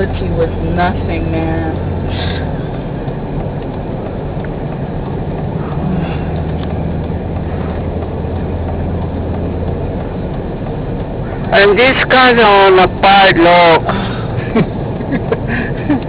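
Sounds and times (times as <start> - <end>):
car engine hum: 0.0 - 16.0.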